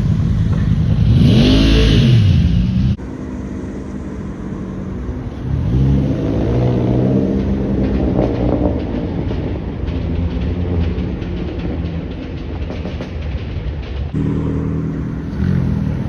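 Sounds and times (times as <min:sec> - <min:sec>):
car engine revving: 0:00.0 - 0:11.3, 0:14.2 - 0:16.0.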